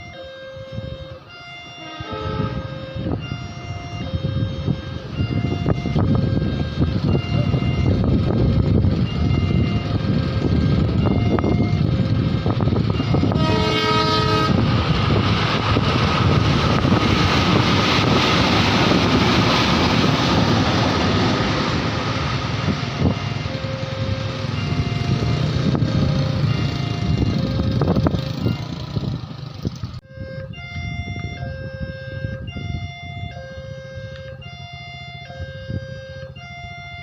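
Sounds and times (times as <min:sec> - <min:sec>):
crossing warning siren: 0:00.0 - 0:37.0
train rumbling: 0:00.0 - 0:37.0
train horn: 0:00.6 - 0:06.0, 0:13.0 - 0:14.7.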